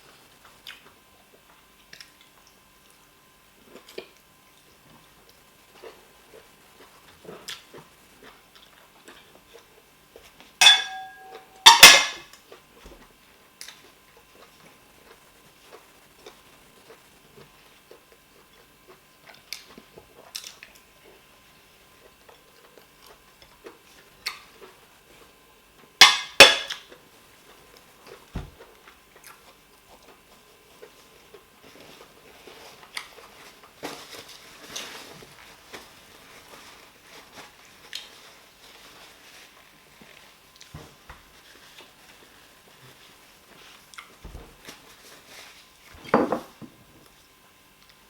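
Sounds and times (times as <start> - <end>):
dishes clinking: 10.6 - 12.3, 26.0 - 26.8, 46.0 - 46.7.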